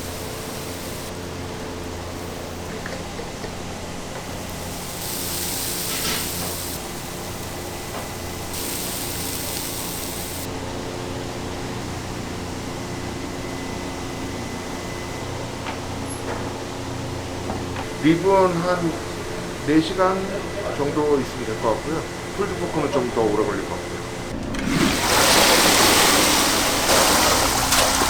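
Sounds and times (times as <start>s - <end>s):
bursts of high hissing: 0.0s - 1.2s, 1.8s - 2.7s, 4.2s - 10.5s
running machinery hum: 0.0s - 28.0s.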